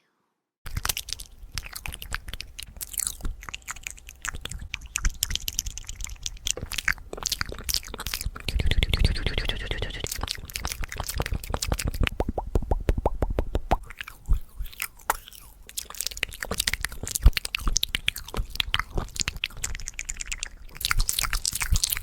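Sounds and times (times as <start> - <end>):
wet mouth clicks and smacks: 0.7 - 22.0
pitched sound: 8.4 - 10.3.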